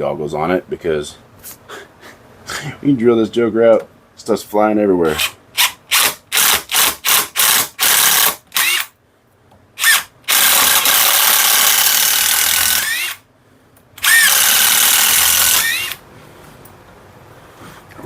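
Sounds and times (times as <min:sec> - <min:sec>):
power drill whining: 0:05.9 - 0:08.9, 0:09.8 - 0:13.2, 0:14.0 - 0:16.0.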